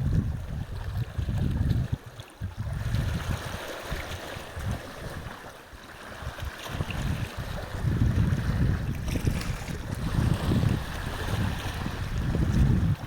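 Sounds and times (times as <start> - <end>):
wind buffeting microphone: 0.0 - 13.0
ocean surf breaking on shore: 2.7 - 13.0.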